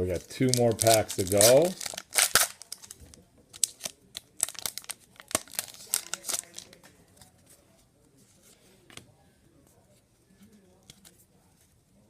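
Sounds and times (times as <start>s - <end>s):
wrapper tearing and crinkling: 0.5s - 3.0s, 3.6s - 6.8s.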